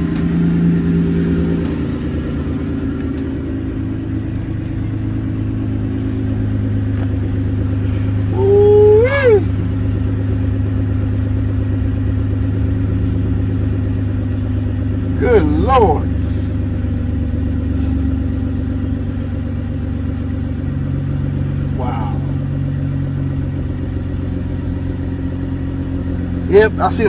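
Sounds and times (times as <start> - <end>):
car engine idling: 0.0 - 27.0
high voice-like cry: 8.3 - 9.5, 15.2 - 16.1, 21.8 - 22.4, 26.5 - 27.0.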